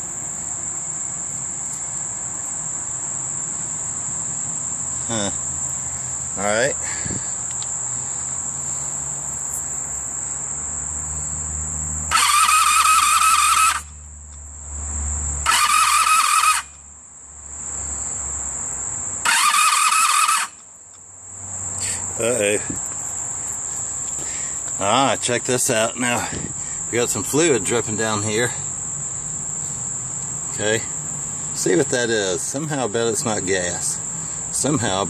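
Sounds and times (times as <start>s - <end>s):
crickets chirping: 0.0s - 35.0s
electric starter cranking engine: 12.1s - 13.9s, 15.4s - 16.8s, 19.2s - 20.6s.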